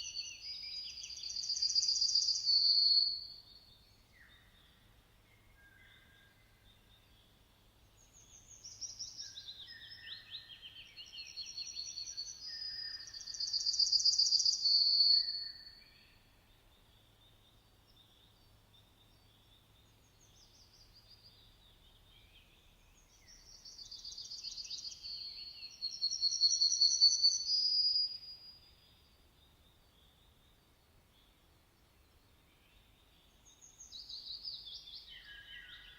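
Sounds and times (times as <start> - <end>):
songbird trilling and whistling: 0.0 - 3.2, 8.7 - 15.7, 23.3 - 28.4.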